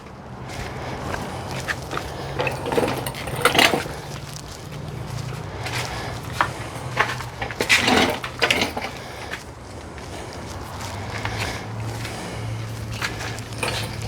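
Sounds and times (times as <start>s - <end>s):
metal clanks and scrapes: 1.1s - 4.4s, 6.9s - 9.3s, 13.0s - 14.0s.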